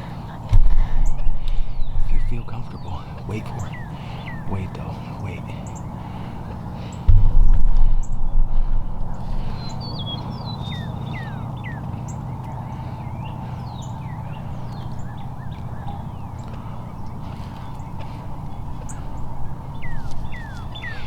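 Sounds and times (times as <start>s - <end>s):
birds chirping: 0.0s - 21.0s
wind thumps on microphone: 0.5s - 2.6s, 7.0s - 10.0s.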